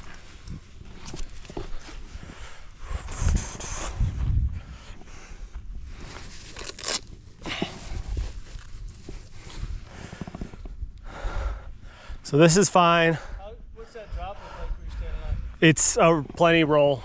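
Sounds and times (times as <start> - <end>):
footsteps on rocky ground: 0.0 - 2.6.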